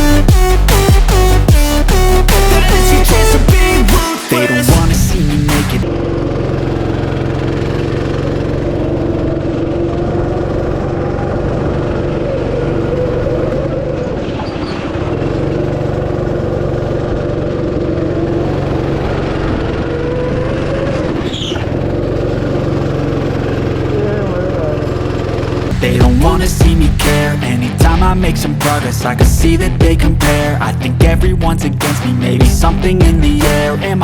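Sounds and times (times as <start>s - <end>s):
go-kart engine: 5.2s - 25.9s
high squeal: 19.8s - 21.7s.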